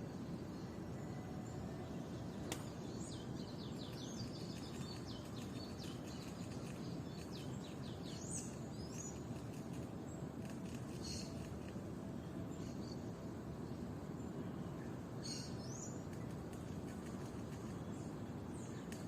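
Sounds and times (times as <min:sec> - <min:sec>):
small birds chirping: 0:00.0 - 0:19.0
sharp click: 0:02.4 - 0:02.7.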